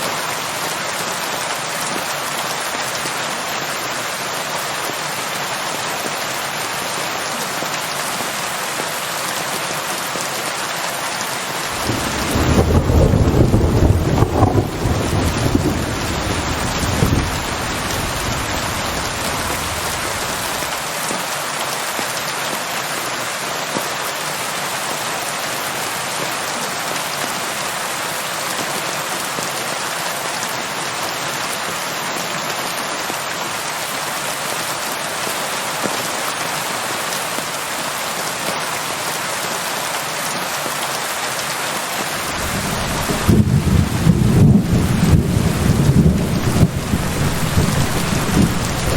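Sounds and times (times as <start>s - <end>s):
steady rain hiss: 0.0s - 48.9s
low thunder rumble: 11.7s - 20.7s, 42.2s - 48.9s.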